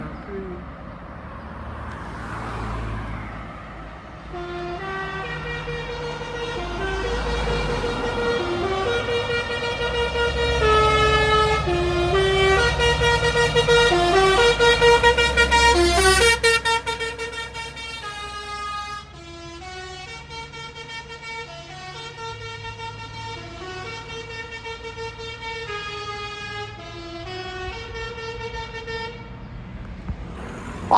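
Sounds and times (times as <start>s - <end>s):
diesel truck engine rumble: 0.0s - 30.9s
musical air horn playing a tune: 4.4s - 17.4s.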